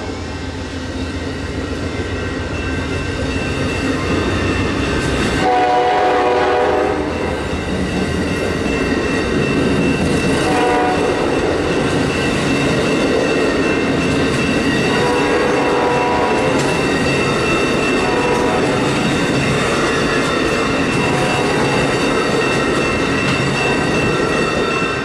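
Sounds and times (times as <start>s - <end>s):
train wheels on rails: 0.0s - 25.0s
crossing bells ringing: 0.8s - 25.0s
train horn: 5.4s - 7.4s, 10.4s - 11.3s, 14.9s - 16.7s, 18.0s - 18.8s, 21.0s - 22.0s.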